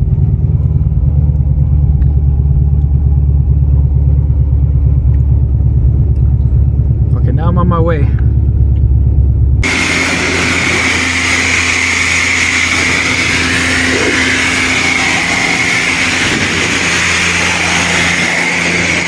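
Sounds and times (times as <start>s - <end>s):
car engine rumbling: 0.0s - 19.0s
road and wind noise: 0.0s - 19.0s
high wavering whine: 8.0s - 19.0s.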